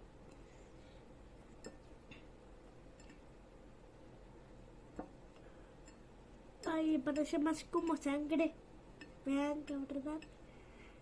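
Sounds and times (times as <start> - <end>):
faint clicks mixing slime: 2.9 - 3.3.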